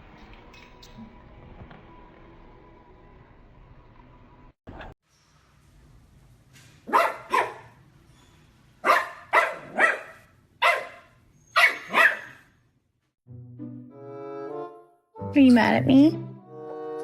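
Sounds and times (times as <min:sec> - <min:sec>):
dog barking: 0:06.9 - 0:07.8, 0:08.8 - 0:12.5.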